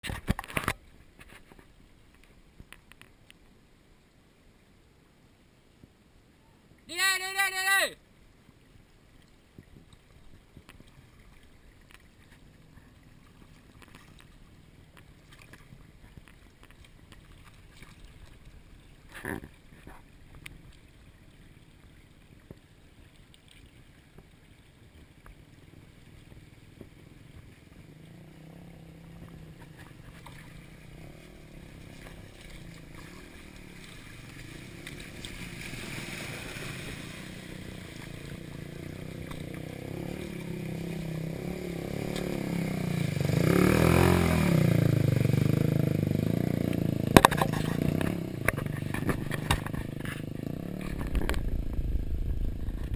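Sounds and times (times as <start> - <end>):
dirt bike engine passing: 25.5 - 52.9.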